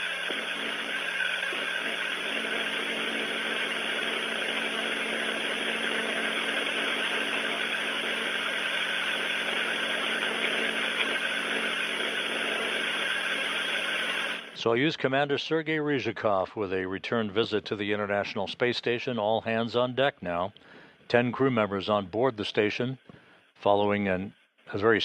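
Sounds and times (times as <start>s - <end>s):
ventilation fans humming: 0.0s - 14.7s.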